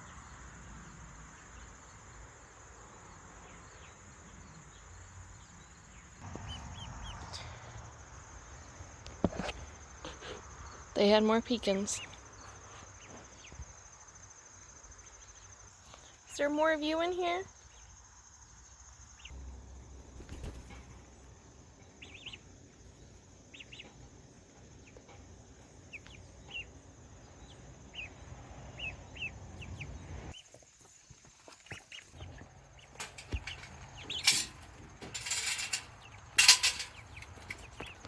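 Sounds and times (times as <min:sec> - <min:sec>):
wings flapping: 0:20.0 - 0:21.0
chicks peeping: 0:21.9 - 0:38.0.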